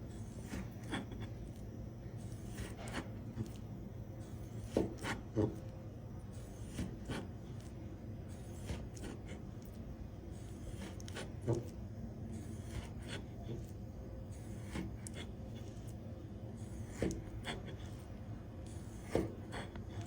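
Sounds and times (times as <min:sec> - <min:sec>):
low steady hum: 0:00.0 - 0:20.0
knife slicing fish on board: 0:04.6 - 0:05.6, 0:06.6 - 0:07.3, 0:08.4 - 0:09.3, 0:12.4 - 0:13.6, 0:14.5 - 0:15.4, 0:16.7 - 0:17.8, 0:18.8 - 0:20.0.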